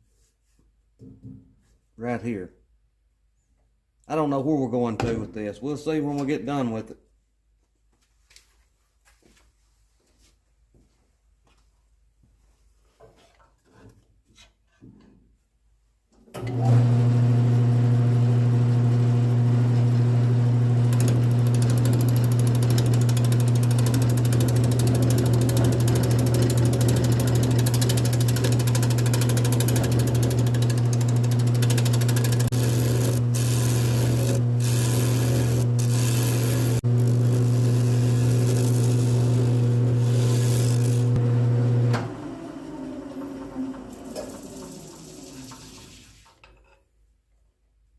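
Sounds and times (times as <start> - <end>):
tool cutting spinning wood: 16.6 - 42.2, 43.1 - 45.9
lathe motor humming: 16.6 - 45.2.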